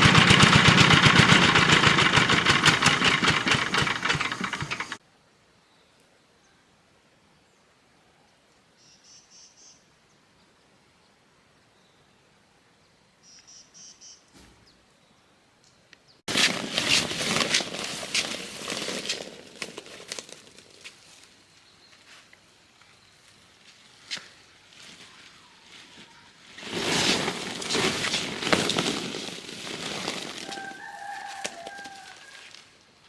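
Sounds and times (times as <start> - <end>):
small engine rattling: 0.0 - 5.0, 16.3 - 21.0, 26.6 - 30.8.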